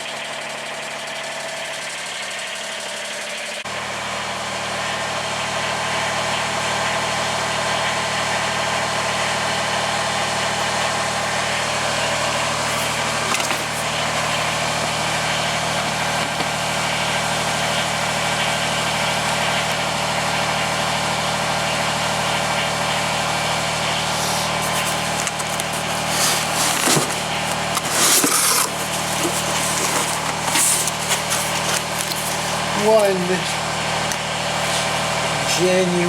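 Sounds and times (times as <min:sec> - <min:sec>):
diesel tractor engine idling: 0:00.0 - 0:36.0
short knocks and rustles: 0:24.6 - 0:32.6.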